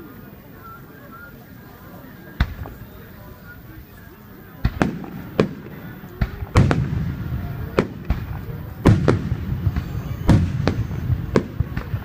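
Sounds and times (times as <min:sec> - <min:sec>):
fireworks bangs with echo: 0:02.4 - 0:03.1, 0:04.5 - 0:12.0.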